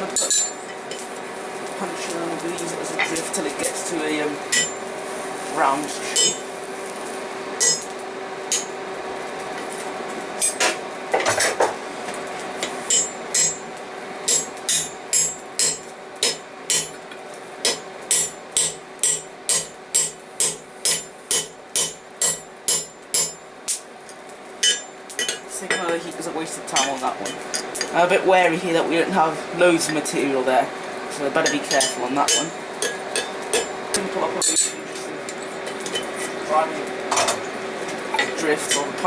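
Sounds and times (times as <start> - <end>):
hammer striking steel punch: 14.3 - 17.0, 17.6 - 23.4, 24.6 - 25.9.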